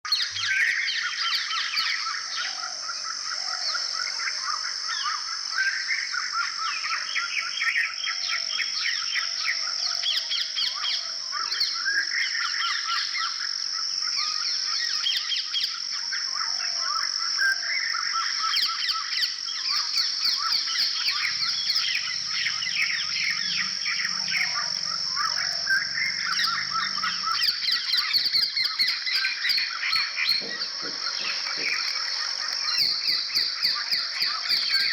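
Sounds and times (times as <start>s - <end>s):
birds chirping: 17.6s - 34.9s.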